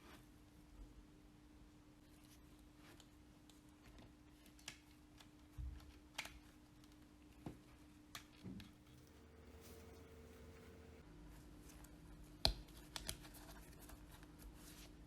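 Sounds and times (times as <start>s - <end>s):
faint steady hum: 8.8s - 11.0s.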